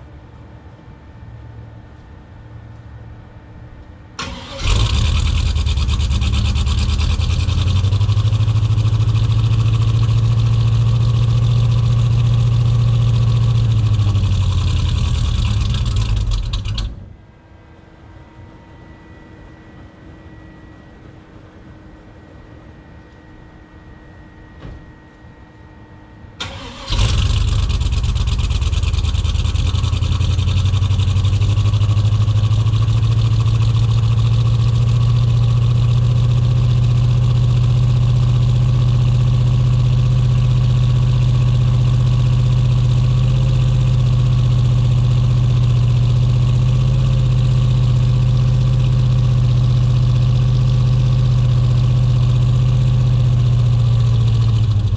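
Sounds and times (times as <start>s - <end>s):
engine starting and running rough: 4.2s - 17.2s, 26.4s - 54.9s.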